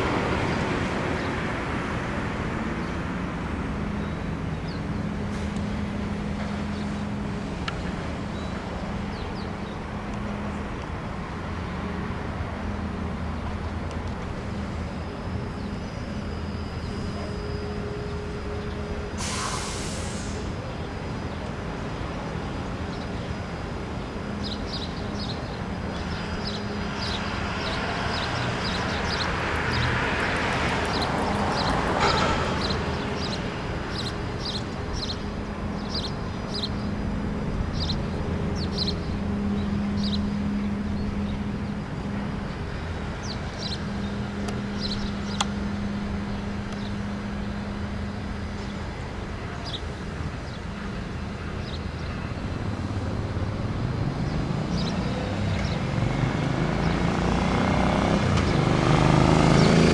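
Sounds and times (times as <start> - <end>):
low traffic hum: 0.0 - 59.9
small songbird chirping: 20.1 - 53.1
vehicle passing: 23.3 - 59.9.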